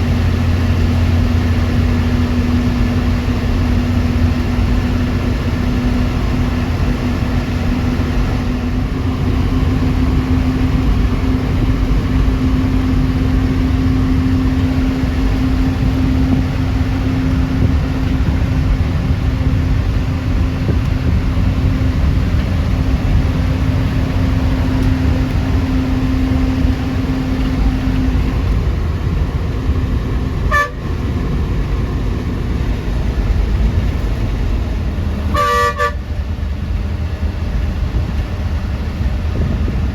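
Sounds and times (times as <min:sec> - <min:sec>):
bus engine and road rumble: 0:00.0 - 0:39.9
vehicle horn toot: 0:30.5 - 0:31.0, 0:35.3 - 0:36.2.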